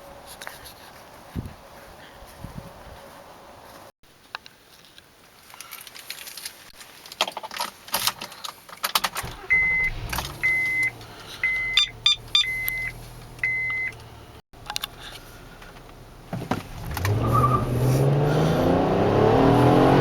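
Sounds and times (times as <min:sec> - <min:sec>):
car engine starting and idling: 0:09.0 - 0:20.0
dashboard chime beeping: 0:09.5 - 0:14.0.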